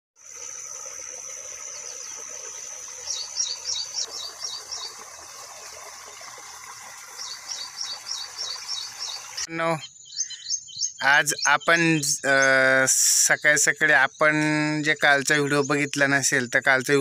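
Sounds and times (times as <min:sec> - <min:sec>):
high insect drone: 0:00.2 - 0:04.9.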